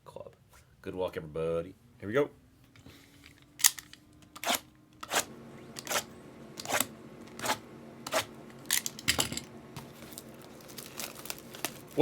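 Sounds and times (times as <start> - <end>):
faint steady hum: 0.0 - 12.0
plastic wrapping crackling and tearing: 9.8 - 12.0.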